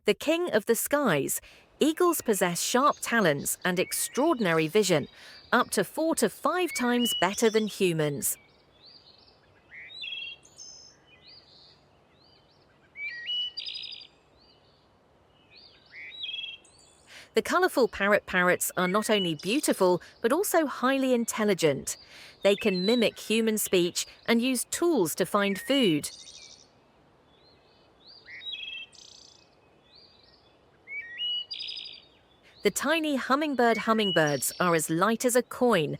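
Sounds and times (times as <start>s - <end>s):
birds chirping and singing: 6.7s - 14.7s, 15.4s - 17.1s, 18.2s - 24.6s, 25.3s - 26.6s, 27.4s - 35.9s
bird chirps and whistles: 13.0s - 14.0s.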